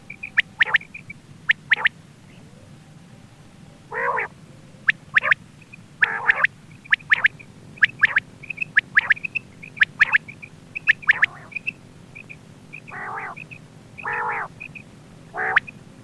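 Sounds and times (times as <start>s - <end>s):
harsh rasping calls: 0.0s - 1.9s, 3.9s - 16.0s
quail whistled calls: 0.0s - 2.5s, 3.9s - 15.9s.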